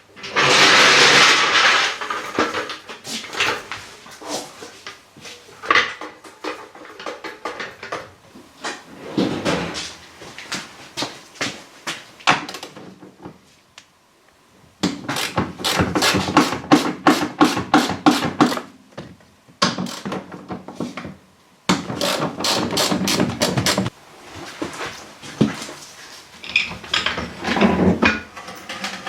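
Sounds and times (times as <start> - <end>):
rapid hand tool knocking strikes: 15.2 - 18.6.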